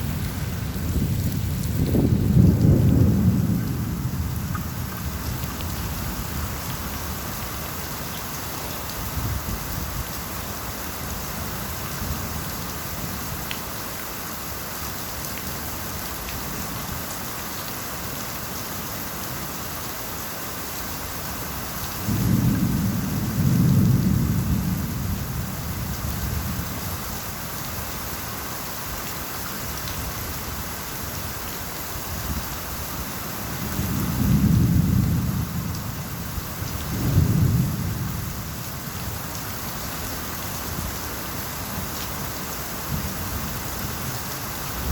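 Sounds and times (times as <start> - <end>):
rolling thunder: 0.0 - 6.5, 22.0 - 26.7, 33.6 - 38.6
steady rain falling: 0.0 - 44.9.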